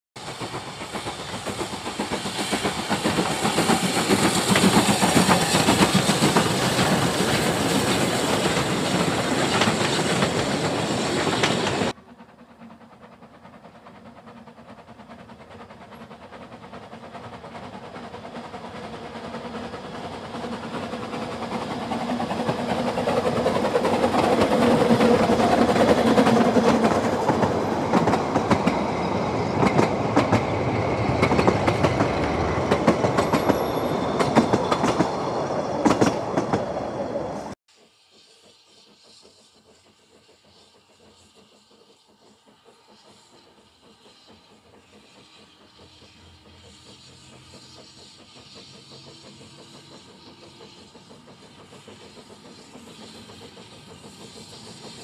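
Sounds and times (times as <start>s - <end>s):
steam train running: 0.2s - 55.0s
train carriages rolling past: 0.2s - 55.0s.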